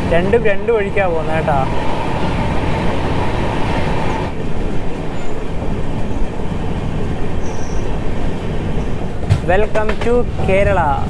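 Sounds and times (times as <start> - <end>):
thin steady whine: 0.0 - 6.4
train wheels rumbling on rails: 0.0 - 11.0.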